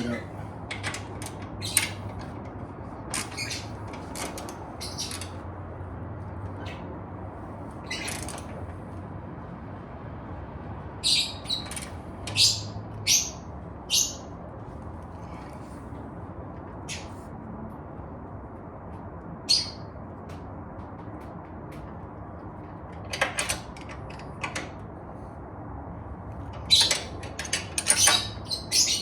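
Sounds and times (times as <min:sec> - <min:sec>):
birds chirping: 0:01.5 - 0:02.2, 0:03.2 - 0:03.9, 0:04.7 - 0:05.4, 0:11.0 - 0:14.3, 0:16.8 - 0:17.2, 0:19.4 - 0:19.9, 0:27.9 - 0:29.0.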